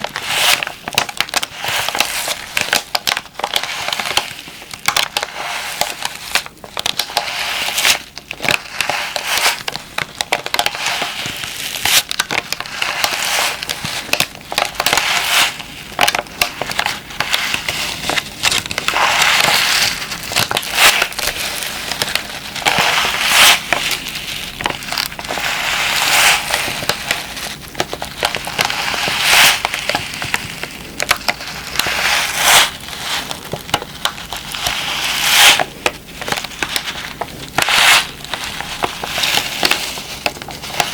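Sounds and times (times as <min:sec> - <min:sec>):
plastic pack crinkling: 0:00.0 - 0:40.9.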